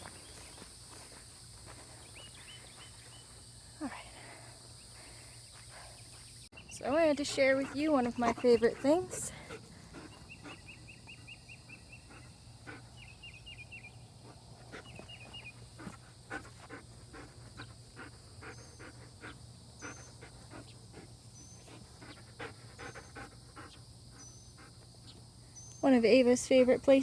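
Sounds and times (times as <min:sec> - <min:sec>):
dog panting: 0:06.9 - 0:13.1, 0:14.2 - 0:25.2.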